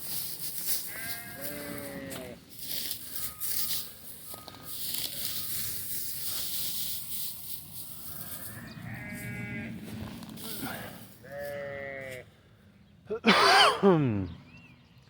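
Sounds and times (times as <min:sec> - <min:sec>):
sheep rustling through feed: 0:00.0 - 0:11.8
sheep bleating: 0:00.9 - 0:02.4, 0:08.1 - 0:09.9, 0:11.2 - 0:12.2.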